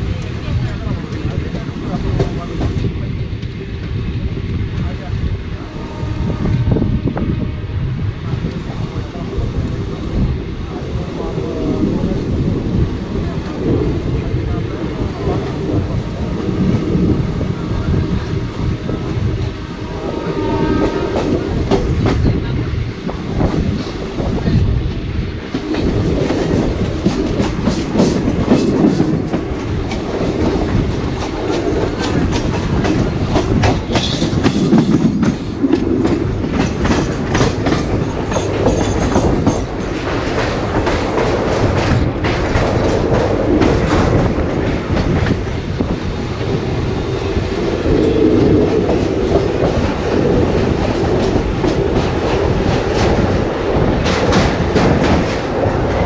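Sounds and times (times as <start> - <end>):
train crossing steel bridge: 0.0 - 56.0
train wheels clattering over rail joints: 23.1 - 56.0.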